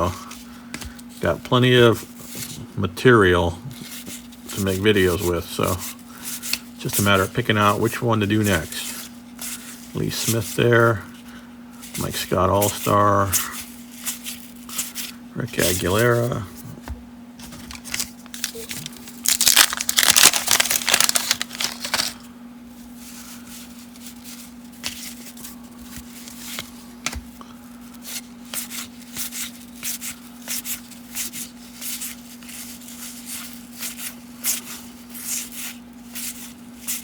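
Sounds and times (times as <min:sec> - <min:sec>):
steady low hum: 0:00.0 - 0:36.9
cards being flicked through: 0:17.7 - 0:22.2
wax paper wrapper tearing: 0:17.7 - 0:22.2.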